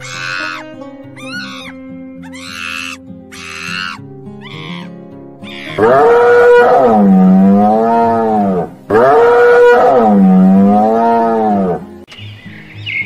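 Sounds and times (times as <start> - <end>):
long wavering animal call: 0.0 - 11.9.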